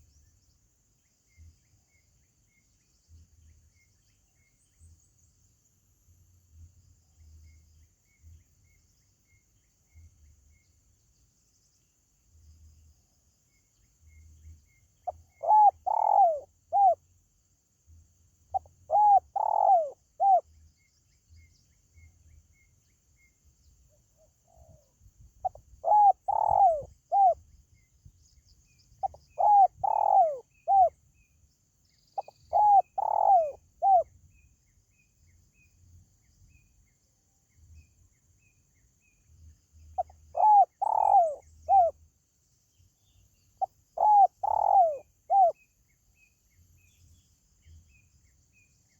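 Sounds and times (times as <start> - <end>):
dove cooing: 15.0 - 17.0, 18.5 - 20.4, 25.4 - 27.4, 29.0 - 31.0, 32.2 - 34.1, 40.0 - 41.9, 43.6 - 45.6.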